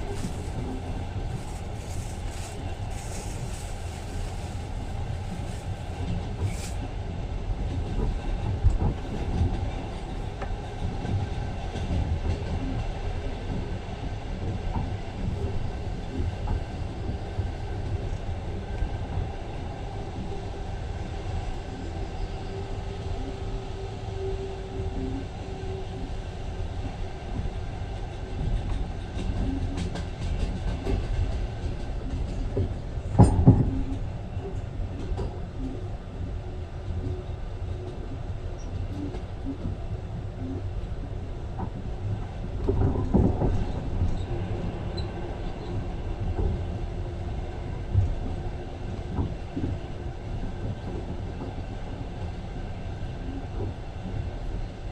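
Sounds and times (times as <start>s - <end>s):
train wheels rumbling on rails: 0.0s - 54.9s
train clattering knocks: 28.4s - 34.1s.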